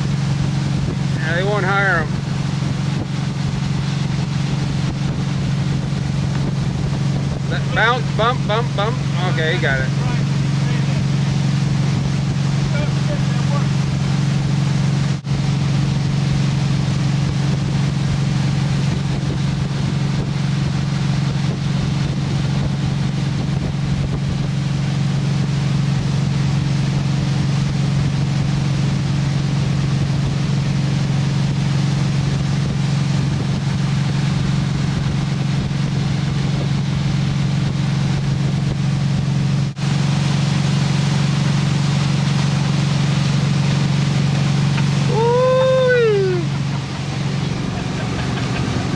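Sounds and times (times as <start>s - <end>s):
motorboat engine drone: 0.0s - 48.9s
water rushing: 0.0s - 48.9s
wind: 0.0s - 48.9s.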